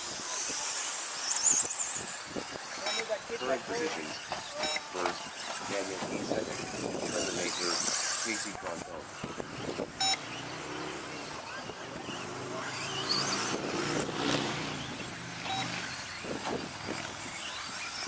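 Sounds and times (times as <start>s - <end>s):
rc truck motors whining: 0.0s - 18.0s
short electronic beep: 10.0s - 10.3s, 15.5s - 15.8s.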